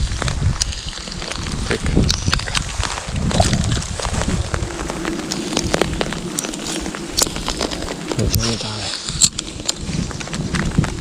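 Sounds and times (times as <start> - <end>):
heavy rain hiss: 3.9 - 10.6.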